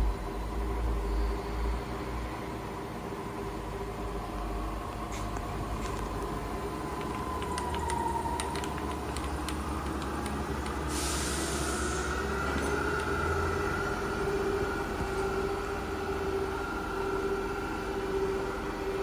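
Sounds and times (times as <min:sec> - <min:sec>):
milling machine motor whine: 0:04.3 - 0:19.0
hiss: 0:10.8 - 0:12.4.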